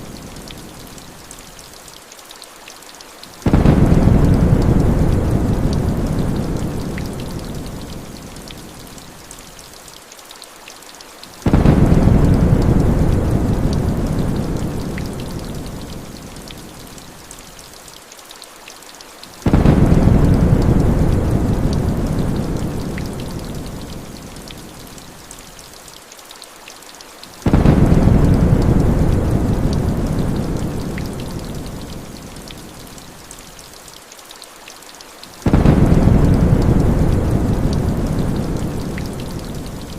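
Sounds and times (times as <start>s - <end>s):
heavy rain falling: 0.0s - 39.9s
deep thunder rumble: 3.5s - 7.5s, 11.5s - 15.5s, 19.5s - 23.2s, 27.5s - 31.2s, 35.5s - 39.9s.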